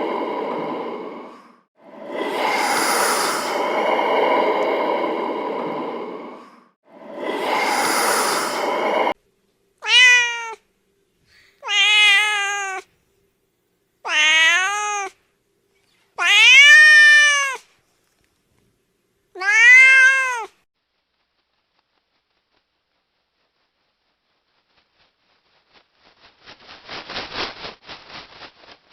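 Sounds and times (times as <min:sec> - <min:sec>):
rushing noise: 0:00.0 - 0:09.2
cat meowing: 0:09.8 - 0:10.6, 0:11.6 - 0:12.9, 0:14.1 - 0:15.2, 0:16.2 - 0:17.6, 0:19.4 - 0:20.6.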